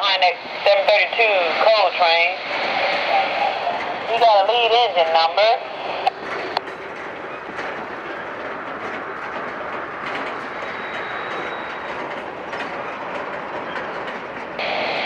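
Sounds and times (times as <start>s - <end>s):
train wheels clicking over rail joints: 6.0s - 15.0s.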